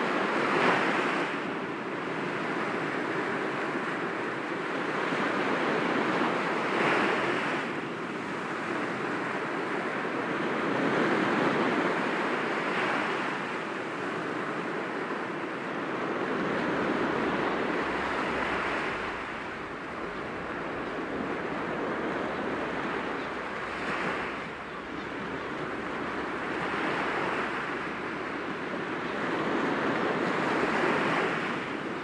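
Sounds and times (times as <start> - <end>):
waves breaking against rocks: 16.3 - 31.8.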